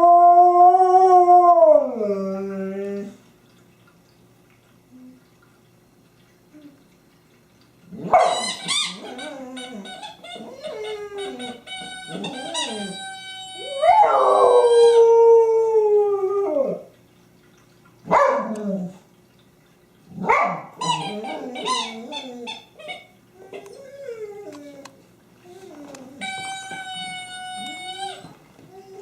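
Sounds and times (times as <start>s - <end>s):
dog howling: 9.0s - 16.9s.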